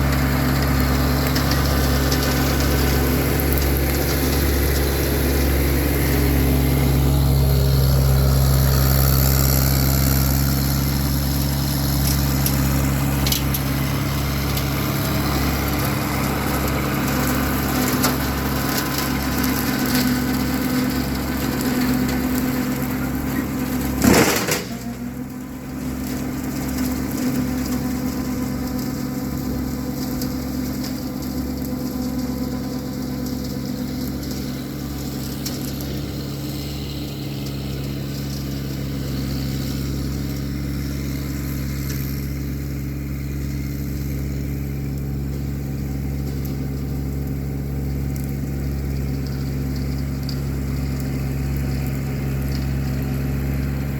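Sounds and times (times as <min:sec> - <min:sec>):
rotary brush cutter cutting brush: 0:00.0 - 0:53.9
tractor engine running: 0:00.0 - 0:53.9
sharp loud crack: 0:23.9 - 0:25.1.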